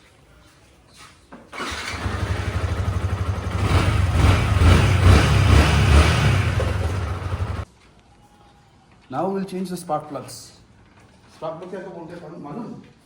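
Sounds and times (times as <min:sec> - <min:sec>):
motorcycle engine running: 0:01.6 - 0:07.6.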